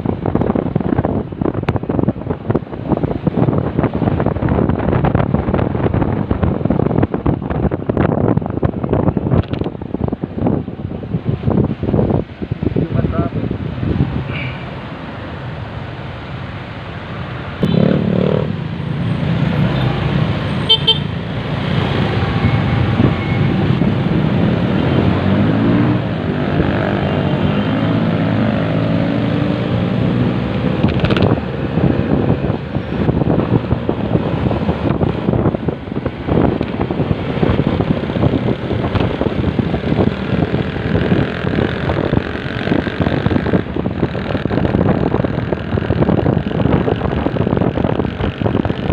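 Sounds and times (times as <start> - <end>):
road noise: 0.0 - 48.9
vehicle horn toot: 20.6 - 21.1.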